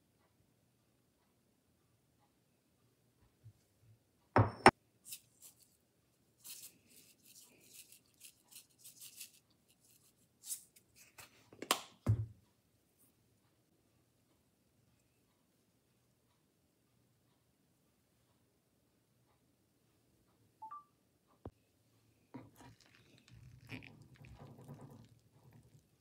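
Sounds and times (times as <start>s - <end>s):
soft scraping and tapping: 22.3s - 26.0s.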